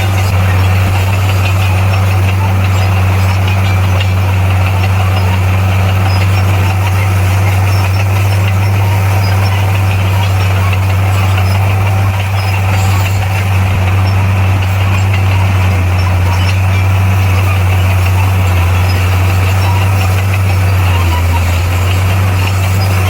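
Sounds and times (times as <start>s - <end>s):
diesel engine droning: 0.0s - 23.0s.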